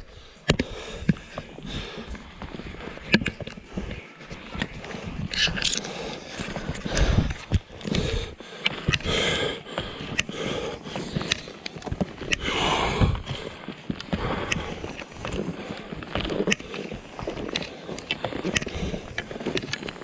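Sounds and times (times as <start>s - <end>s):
ski gear clicks and knocks: 0.0s - 20.0s
skis swishing over snow: 1.0s - 20.0s.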